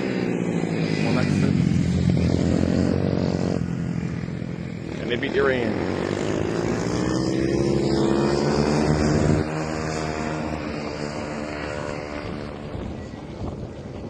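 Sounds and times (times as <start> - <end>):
mini-bike engines running hard: 0.0 - 14.0.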